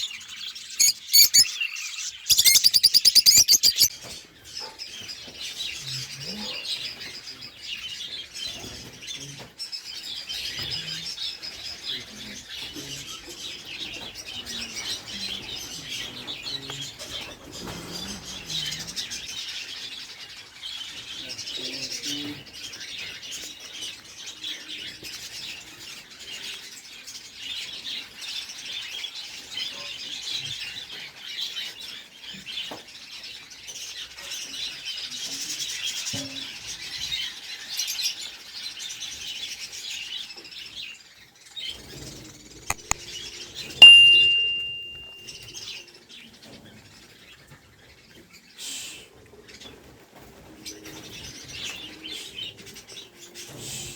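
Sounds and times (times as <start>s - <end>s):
cage birds chirping: 0.0s - 45.3s, 46.8s - 53.9s
loud click with ringing tone: 42.7s - 43.0s, 43.8s - 45.3s.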